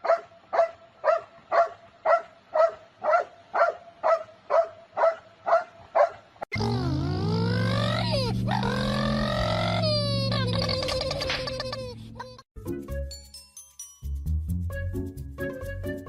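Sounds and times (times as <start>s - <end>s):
dog barking: 0.0s - 6.2s
music with held and sliding tones: 12.6s - 16.0s.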